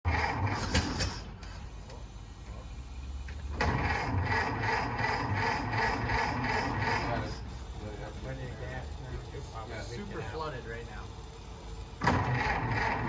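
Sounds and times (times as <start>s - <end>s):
truck engine chugging: 3.7s - 10.0s.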